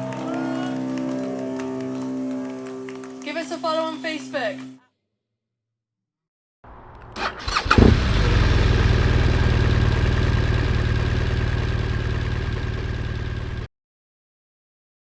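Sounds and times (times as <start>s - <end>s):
motorcycle engine starting and idling: 6.7s - 13.7s.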